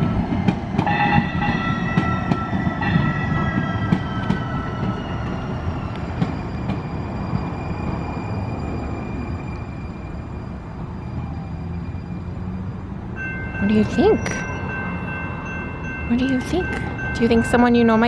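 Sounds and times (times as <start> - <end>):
wheels clicking on track: 0.0 - 8.2
light-rail train whine: 0.0 - 18.0
train rumble: 0.0 - 18.0.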